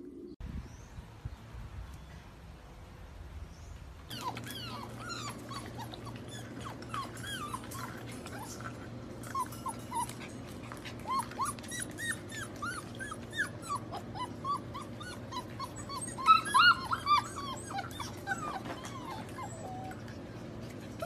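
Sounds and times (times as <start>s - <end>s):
puppies whimpering and yipping: 4.1s - 21.0s.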